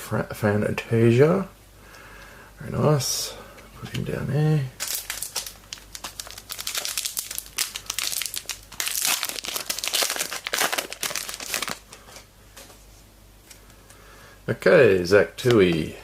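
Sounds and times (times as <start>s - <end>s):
foil wrapper tearing and crinkling: 4.8s - 11.9s.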